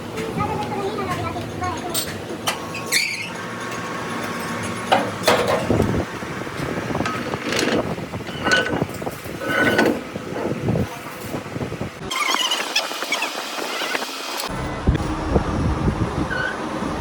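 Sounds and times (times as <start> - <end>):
metal parts knocking and clattering: 3.6 - 5.9, 6.6 - 10.0.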